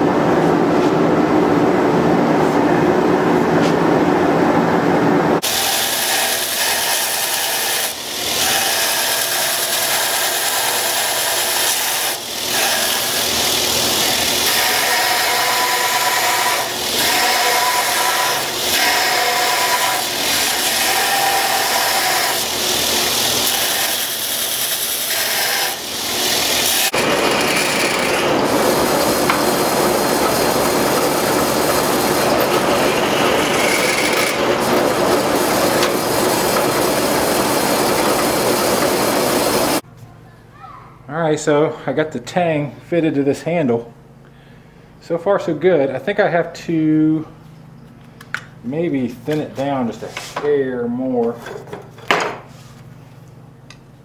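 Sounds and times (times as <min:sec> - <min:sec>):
power grinder grinding steel: 0:05.4 - 0:39.8.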